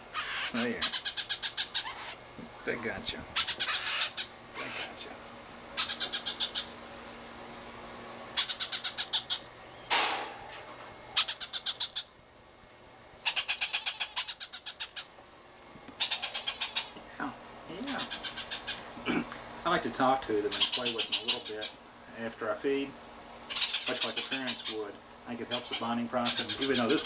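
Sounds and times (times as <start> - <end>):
parrot squawk: 0.1 - 2.2, 3.4 - 5.0, 5.8 - 6.7, 8.4 - 9.5, 11.2 - 12.1, 13.2 - 15.1, 16.0 - 17.0, 17.9 - 18.9, 20.5 - 21.8, 23.5 - 24.8, 25.5 - 27.0
parrot chicks chirping: 0.1 - 5.1, 5.7 - 7.2, 8.2 - 12.2, 13.2 - 15.2, 15.9 - 17.0, 17.7 - 19.0, 20.3 - 21.8, 23.4 - 27.0.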